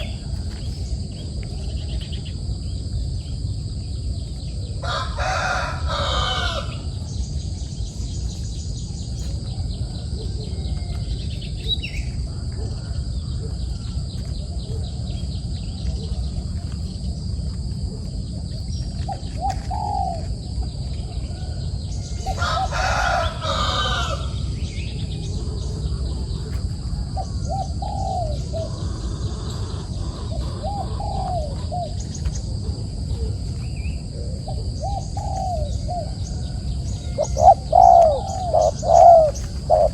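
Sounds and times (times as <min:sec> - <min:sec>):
rooster low calls: 0:04.7 - 0:07.0, 0:21.2 - 0:32.0
rooster crowing: 0:04.8 - 0:07.0, 0:21.2 - 0:24.6, 0:35.6 - 0:39.4.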